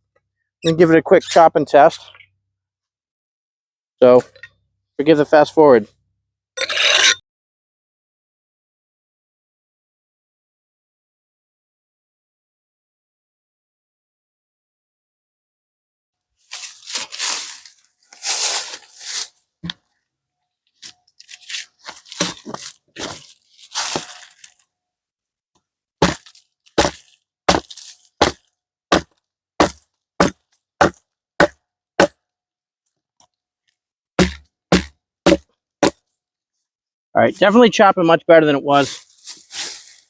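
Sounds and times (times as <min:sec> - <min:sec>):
axe scraping on cinderblock: 0:06.6 - 0:07.2, 0:20.8 - 0:24.5, 0:26.0 - 0:32.1, 0:34.2 - 0:36.0
axe chopping wood: 0:22.2 - 0:23.2, 0:26.0 - 0:32.2, 0:34.2 - 0:36.0.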